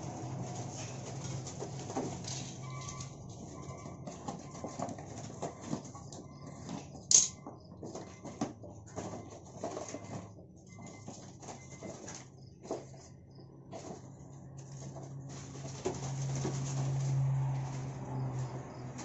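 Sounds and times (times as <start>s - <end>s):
birds tapping and scratching in box: 0.0s - 19.0s.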